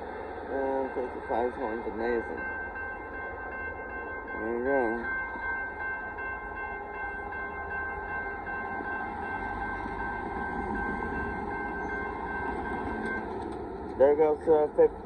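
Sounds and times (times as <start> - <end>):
train wheels rumbling on rail: 0.0 - 15.0
pulsing high ringing tone: 0.5 - 13.4.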